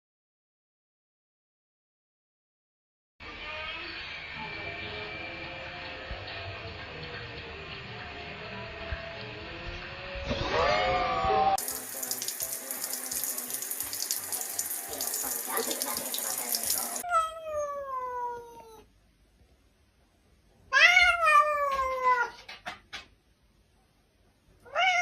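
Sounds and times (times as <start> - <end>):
water running from a tap: 11.6 - 17.0
cat meowing: 17.0 - 18.9, 20.7 - 22.5, 24.6 - 25.0.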